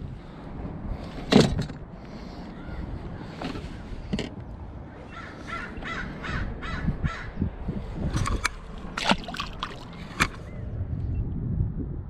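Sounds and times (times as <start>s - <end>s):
bird calling repeatedly: 4.9s - 7.6s.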